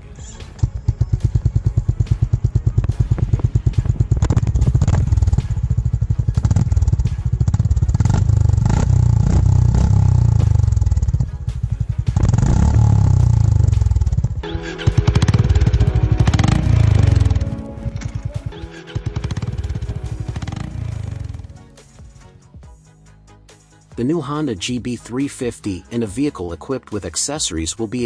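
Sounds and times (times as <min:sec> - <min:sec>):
motorcycle engine thumping: 0:00.4 - 0:14.4, 0:15.0 - 0:21.6.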